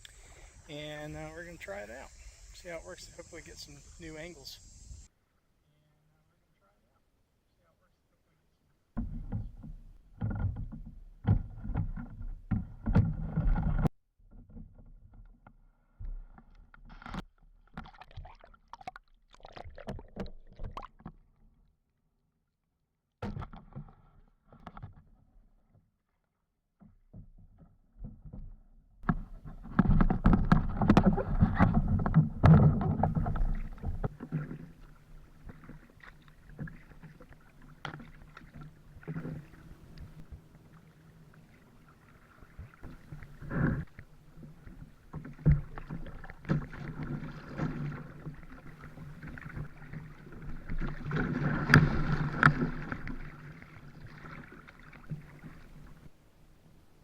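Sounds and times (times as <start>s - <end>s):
paddle splashing water: 8.9s - 21.4s, 29.0s - 57.0s
water washing along hull: 29.0s - 56.2s.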